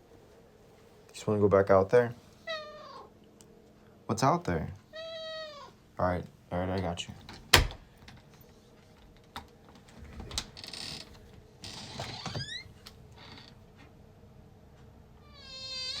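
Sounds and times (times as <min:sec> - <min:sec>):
door creaking: 0:07.3 - 0:07.8, 0:10.0 - 0:13.6, 0:15.3 - 0:16.0
door latch clicks and knocks: 0:07.3 - 0:07.9.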